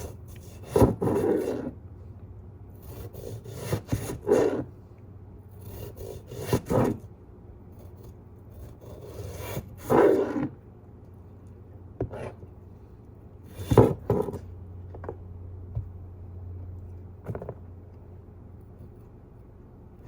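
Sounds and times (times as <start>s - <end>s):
scraping on wood: 0.0s - 1.8s, 12.0s - 12.4s, 13.5s - 15.2s.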